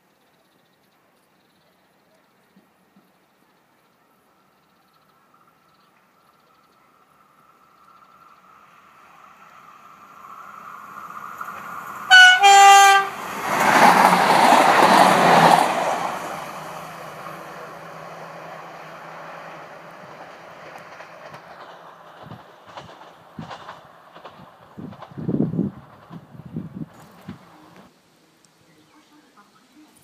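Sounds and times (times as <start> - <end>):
train passing with wheel and rail noise: 0.0 - 28.0
two-tone train horn: 12.1 - 13.3.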